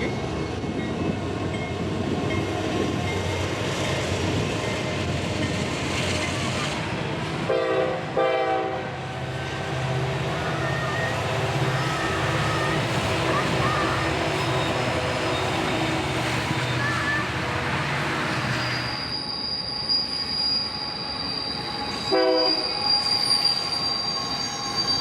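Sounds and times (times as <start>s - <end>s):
locomotive engine rumbling: 0.0s - 25.0s
train air horn blasts: 7.5s - 9.0s, 22.1s - 22.8s.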